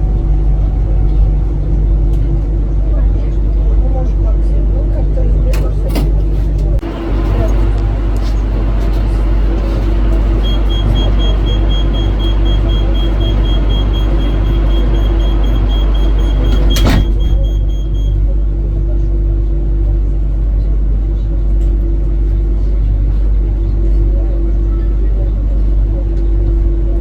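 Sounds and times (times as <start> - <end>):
electric train rumbling: 0.0 - 27.0
rapid high-pitched beeping: 10.2 - 18.2.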